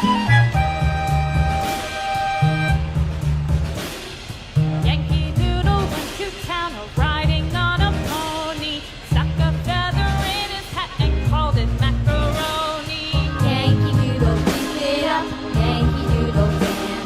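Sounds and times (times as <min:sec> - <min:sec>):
pop song with female vocals: 0:04.8 - 0:17.0.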